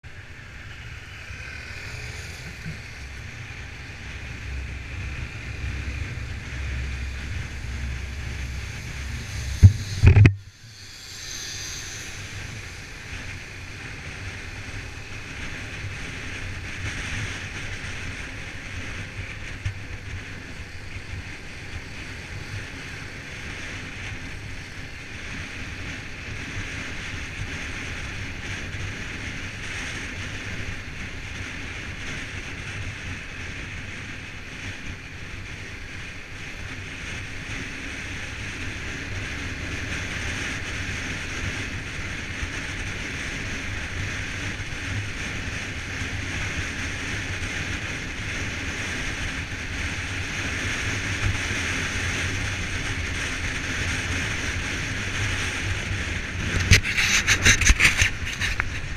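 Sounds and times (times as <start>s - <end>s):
wind rumble on microphone: 0.0s - 58.9s
steady hiss: 0.1s - 18.2s.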